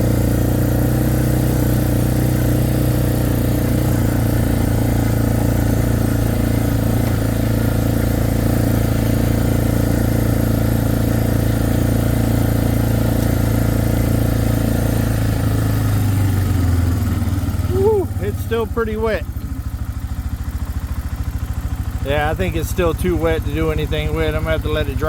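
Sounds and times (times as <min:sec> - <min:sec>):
quad bike engine running: 0:00.0 - 0:25.0.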